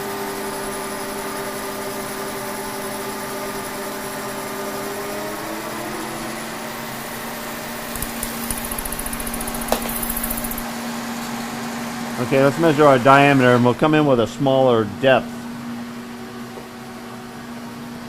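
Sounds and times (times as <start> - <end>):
milling machine humming: 7.5 - 10.7
fast even rattling: 7.8 - 10.7.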